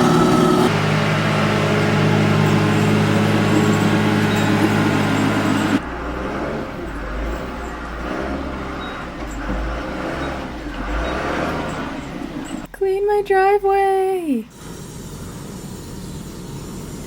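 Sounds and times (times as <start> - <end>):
vehicle engine running: 0.0 - 12.7
deep rough engine rumble: 0.0 - 12.8.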